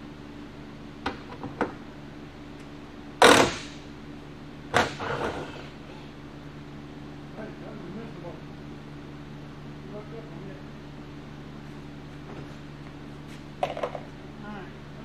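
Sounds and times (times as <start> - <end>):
steady low hum: 0.0 - 15.0
loud knocks: 3.2 - 3.8.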